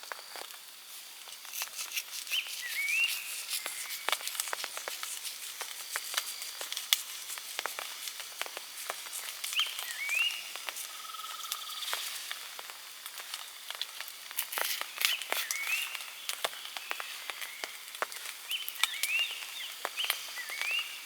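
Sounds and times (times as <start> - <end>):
light hiss: 0.0 - 21.0
bonfire crackling and popping: 3.4 - 20.8.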